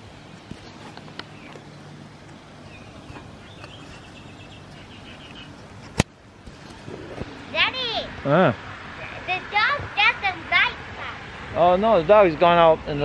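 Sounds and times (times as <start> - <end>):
bird chattering call: 2.7 - 5.6.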